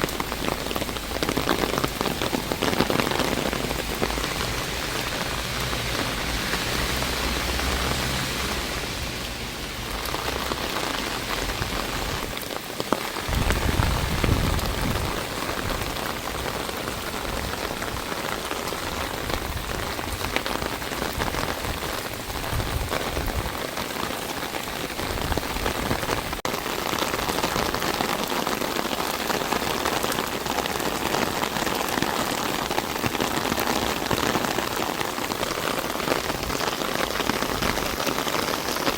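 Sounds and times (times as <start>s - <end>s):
rain pattering: 0.0s - 38.9s
low rumble: 1.9s - 12.3s.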